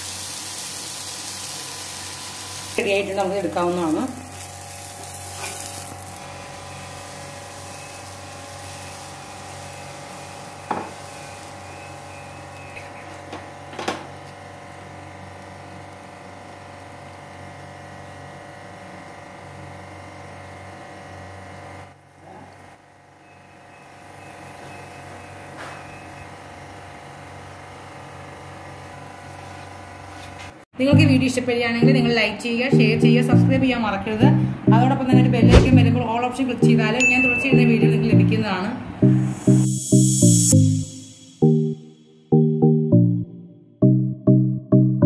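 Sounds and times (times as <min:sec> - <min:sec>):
steady hum: 0:30.8 - 0:43.5.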